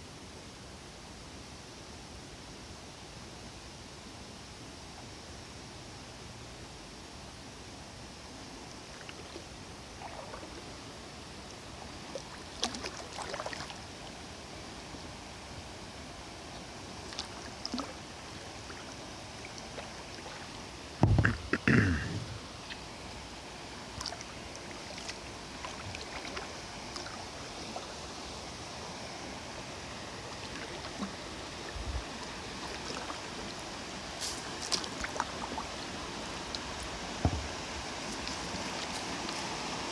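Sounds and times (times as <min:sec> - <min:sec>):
moving water wash: 0:08.2 - 0:39.9
kayak paddle splashing in water: 0:10.0 - 0:10.7, 0:12.1 - 0:13.8, 0:23.9 - 0:28.2, 0:30.4 - 0:35.9.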